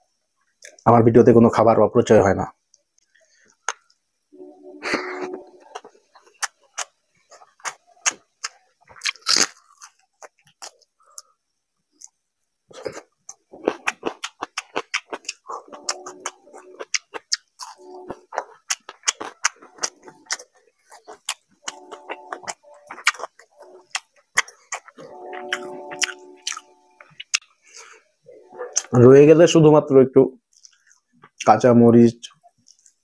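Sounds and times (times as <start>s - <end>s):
wet chewing and lip-smacking: 5.2s - 11.3s, 12.0s - 27.9s, 28.5s - 29.0s, 30.5s - 31.5s, 32.4s - 33.0s.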